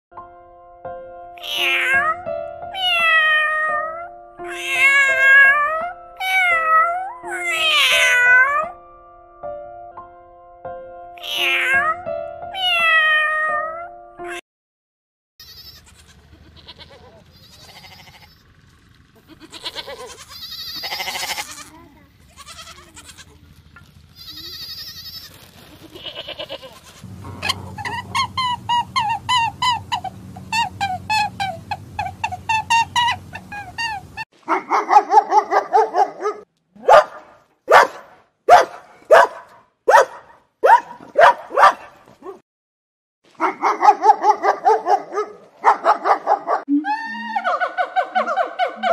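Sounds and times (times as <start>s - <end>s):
keyboard background music: 0.1s - 14.3s
cat meowing: 1.4s - 2.2s, 2.8s - 8.7s, 11.2s - 14.4s, 15.6s - 18.3s, 19.3s - 21.7s
goats bleating: 15.4s - 18.4s, 19.2s - 23.5s, 24.2s - 34.0s.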